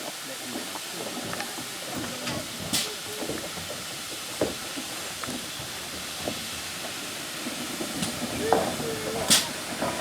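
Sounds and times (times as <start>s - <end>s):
steam hissing: 3.7s - 10.0s.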